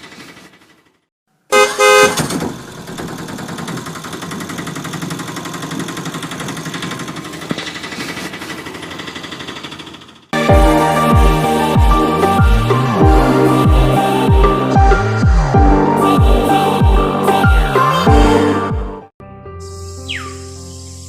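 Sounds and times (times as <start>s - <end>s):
small engine running: 0.0s - 1.0s, 2.2s - 13.8s
loud horn-like tone: 1.5s - 2.2s.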